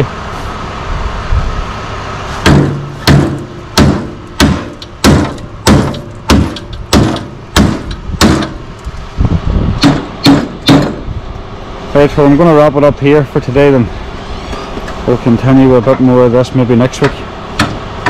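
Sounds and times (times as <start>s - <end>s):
hammer striking metal: 2.4s - 8.6s, 9.8s - 11.0s, 17.0s - 17.8s.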